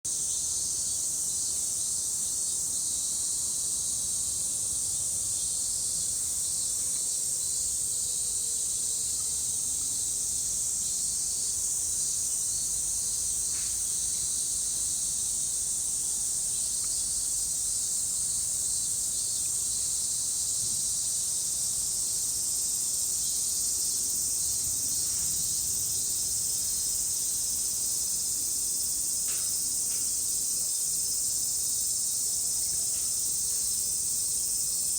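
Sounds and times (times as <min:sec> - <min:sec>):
cicadas buzzing: 0:07.2 - 0:34.9.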